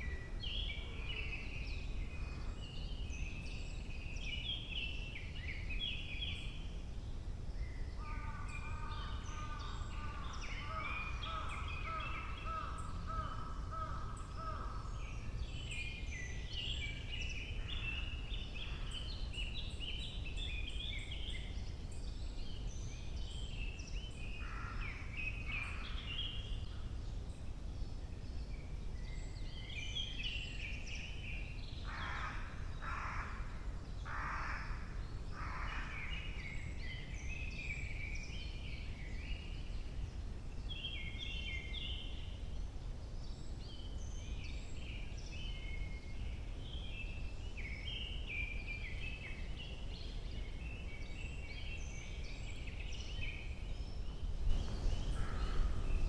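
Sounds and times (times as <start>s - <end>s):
songbirds singing: 0.0s - 56.0s
crow cawing: 8.0s - 14.9s, 31.9s - 33.5s, 34.1s - 35.9s.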